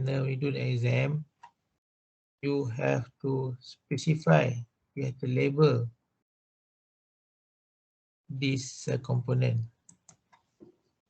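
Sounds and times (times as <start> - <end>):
man speaking: 0.0 - 1.3, 2.4 - 5.9, 8.3 - 9.7.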